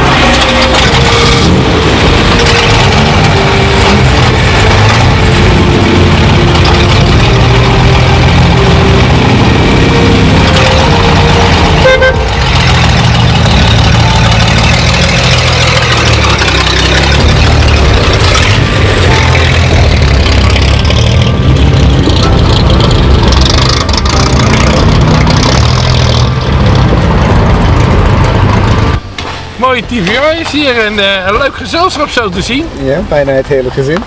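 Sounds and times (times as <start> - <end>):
car engines running loudly: 0.0 - 34.0.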